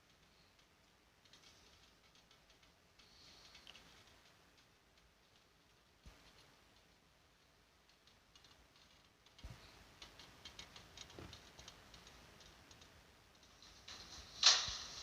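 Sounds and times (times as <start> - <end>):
faint irregular clicking: 0.0 - 15.0
recording hiss: 0.0 - 15.0.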